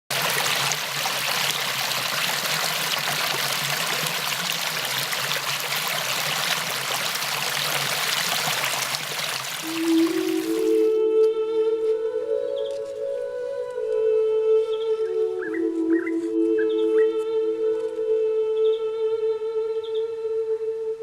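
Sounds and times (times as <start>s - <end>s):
stream of water flowing: 0.0s - 11.0s
music with held notes: 10.6s - 21.0s.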